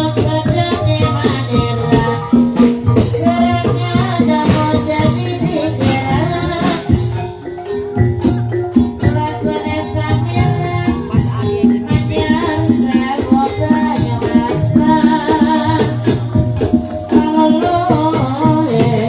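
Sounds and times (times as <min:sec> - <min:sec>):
low drum beat: 0:00.0 - 0:19.0
tuned percussion quick notes: 0:00.0 - 0:19.0.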